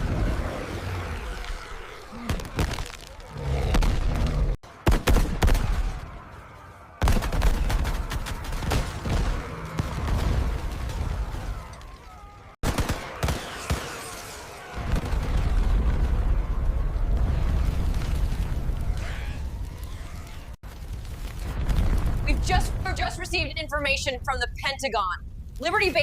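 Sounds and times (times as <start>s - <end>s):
rapid gunfire: 4.8s - 6.0s, 7.0s - 11.1s, 12.6s - 16.1s.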